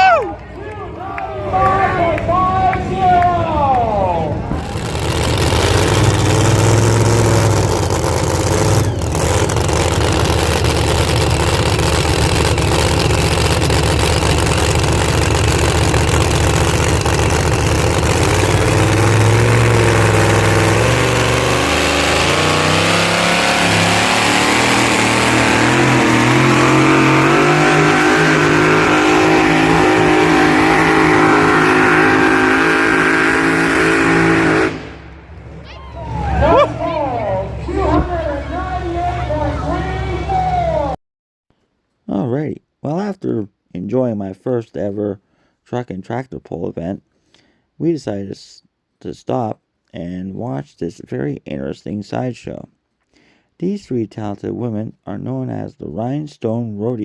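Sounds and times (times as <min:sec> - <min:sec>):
heavy engine running under load: 0:04.4 - 0:32.8.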